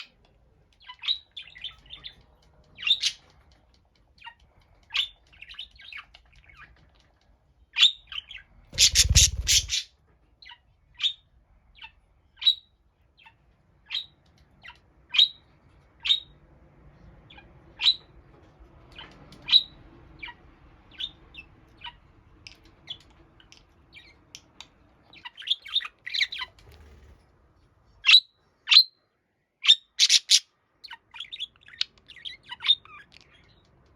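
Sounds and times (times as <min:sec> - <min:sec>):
budgerigar chirping: 0:02.8 - 0:03.3, 0:07.8 - 0:11.2, 0:29.6 - 0:33.6.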